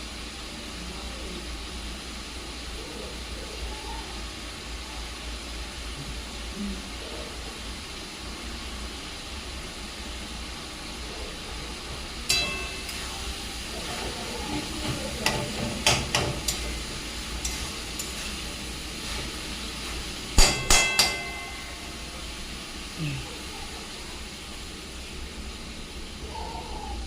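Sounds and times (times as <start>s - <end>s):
frying hiss: 0.0s - 27.0s
metal spoon clinking on pan: 12.3s - 13.2s, 14.8s - 16.8s, 17.4s - 18.3s, 20.4s - 21.9s.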